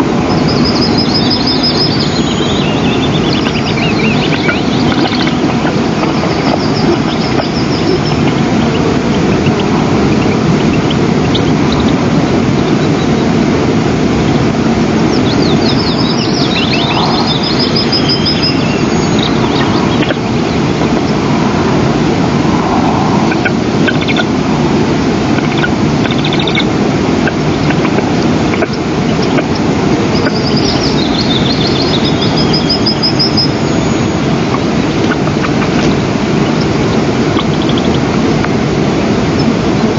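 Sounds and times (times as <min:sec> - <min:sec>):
wind rumble on microphone: 0:00.0 - 0:39.9
high-pitched bird chirping: 0:00.2 - 0:13.3, 0:15.0 - 0:20.7, 0:25.4 - 0:26.7, 0:28.6 - 0:38.0.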